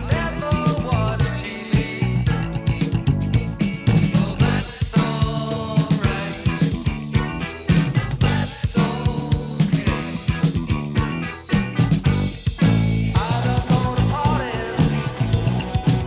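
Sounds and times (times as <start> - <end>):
instrumental rock music: 0.0 - 16.0.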